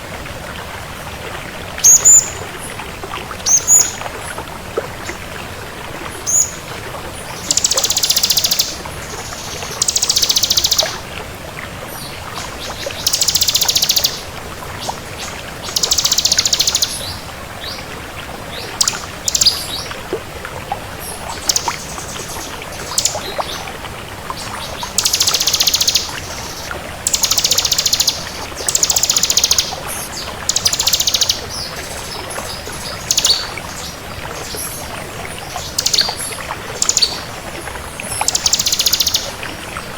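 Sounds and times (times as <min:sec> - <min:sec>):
bird singing trilled phrases: 0:01.9 - 0:02.4, 0:03.5 - 0:04.0, 0:06.3 - 0:06.6, 0:07.4 - 0:10.9, 0:12.7 - 0:14.3, 0:15.7 - 0:17.2, 0:21.4 - 0:23.6, 0:24.6 - 0:33.9, 0:35.4 - 0:37.3, 0:38.1 - 0:39.3.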